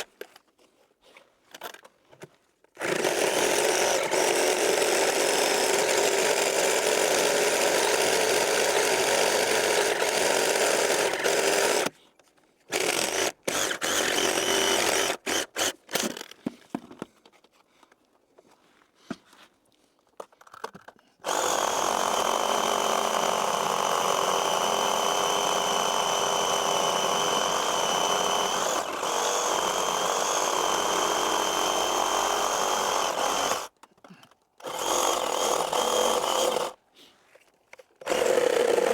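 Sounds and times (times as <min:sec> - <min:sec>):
chainsaw cutting wood: 0:02.8 - 0:11.9, 0:12.7 - 0:16.5, 0:21.2 - 0:33.8, 0:34.6 - 0:36.8, 0:38.0 - 0:38.9.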